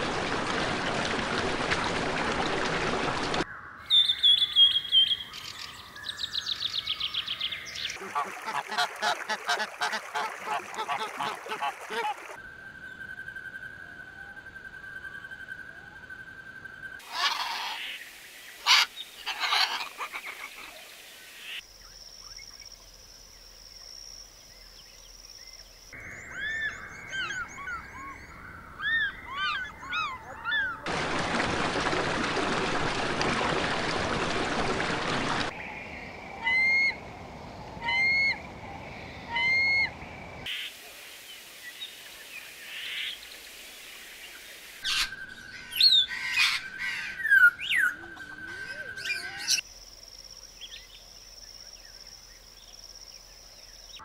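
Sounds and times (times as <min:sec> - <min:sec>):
birds calling: 0:26.0 - 0:30.9, 0:44.8 - 0:49.6
loud steady hiss: 0:40.5 - 0:44.8.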